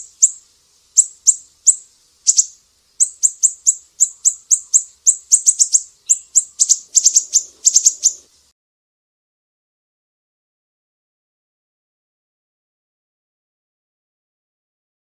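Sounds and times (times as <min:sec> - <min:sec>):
bird singing high chips: 0:00.0 - 0:08.3.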